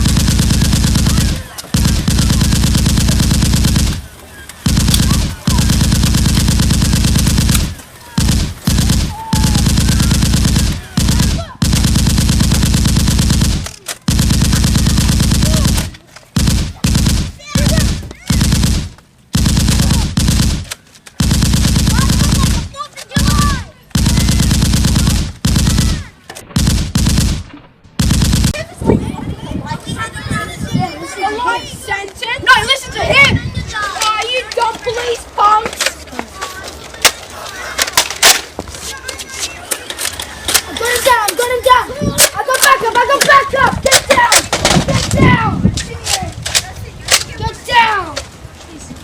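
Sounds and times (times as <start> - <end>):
machine-gun fire: 0.0 - 28.6.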